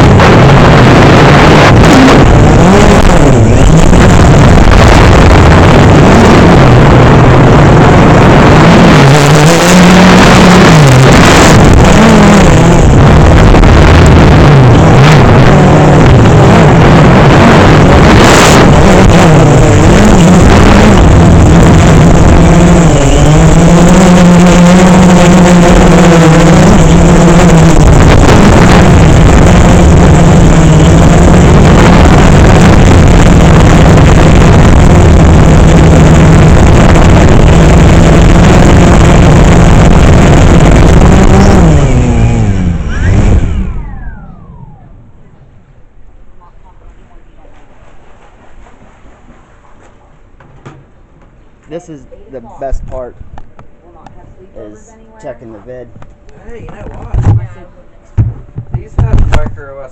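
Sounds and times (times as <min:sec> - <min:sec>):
drone propellers buzzing: 0:00.0 - 0:46.5.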